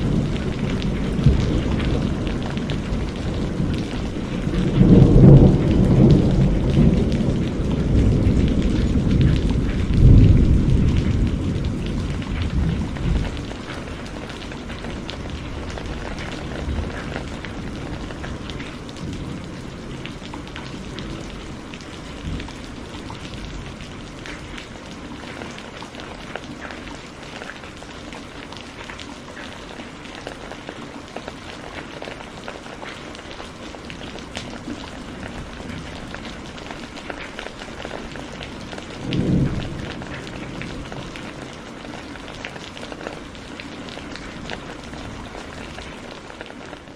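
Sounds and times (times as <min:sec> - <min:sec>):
low thunder rumbles: 0:00.0 - 0:27.2, 0:33.7 - 0:46.0
steady rain falling: 0:00.0 - 0:46.9.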